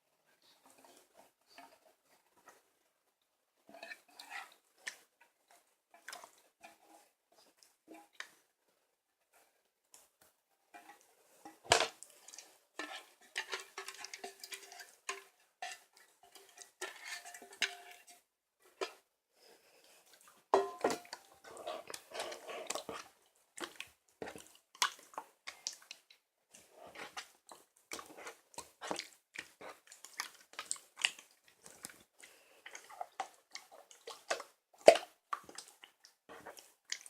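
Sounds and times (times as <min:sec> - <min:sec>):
dishes and utensils clinking: 0:12.8 - 0:18.2, 0:20.6 - 0:21.6.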